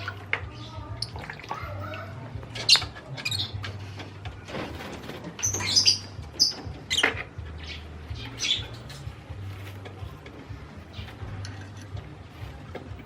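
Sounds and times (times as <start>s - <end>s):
pigeon squeaks: 0.0s - 12.5s.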